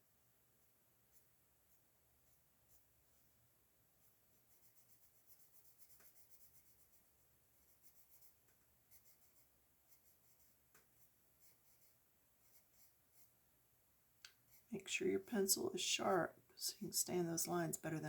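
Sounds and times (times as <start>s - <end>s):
colored pencil scratching paper: 4.0s - 13.4s.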